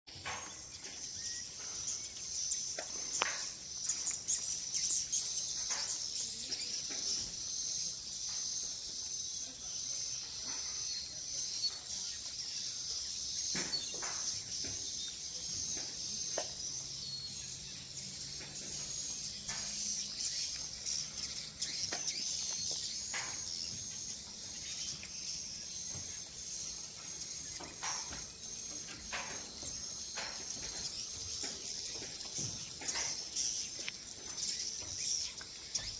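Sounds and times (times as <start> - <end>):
swiftlets twittering: 0.5 - 35.9.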